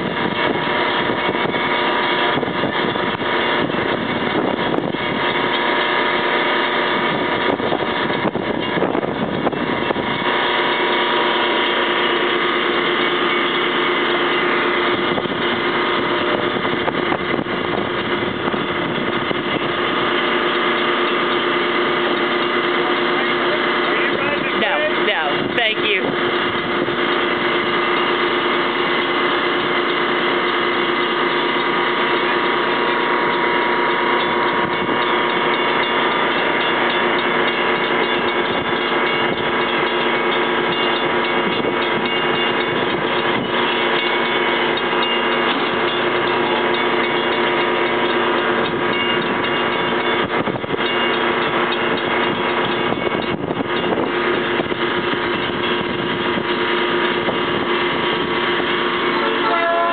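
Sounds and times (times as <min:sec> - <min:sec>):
metallic ringing tones: 0:00.0 - 0:59.9
train wheels clicking on rails: 0:26.4 - 0:59.5.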